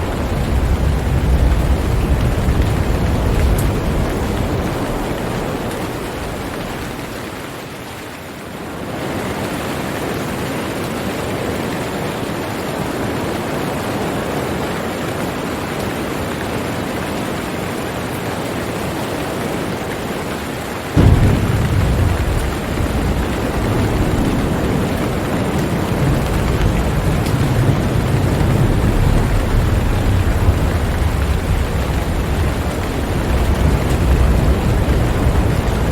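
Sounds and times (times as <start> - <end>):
thunder clap and rumble: 0.0 - 7.5, 21.0 - 35.9
steady rain: 0.0 - 35.9.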